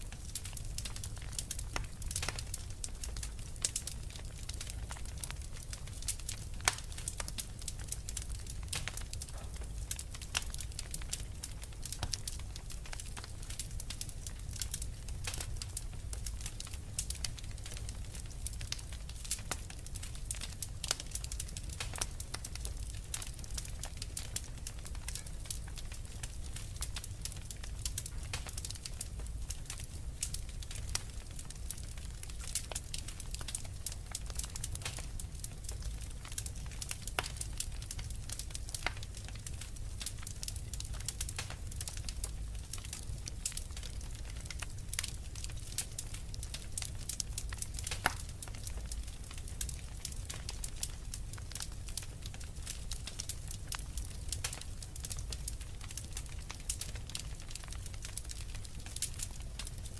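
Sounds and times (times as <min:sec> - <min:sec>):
fire popping and snapping: 0:00.0 - 0:59.9
low rumble of burning fire: 0:00.0 - 0:59.9.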